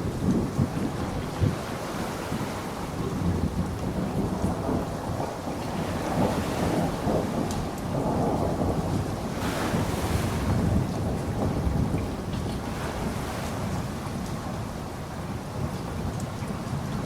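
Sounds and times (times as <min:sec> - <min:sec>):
steady rainfall hiss: 0:00.0 - 0:17.0
rain drop ticks: 0:00.2 - 0:00.5, 0:07.4 - 0:08.1, 0:15.7 - 0:17.0.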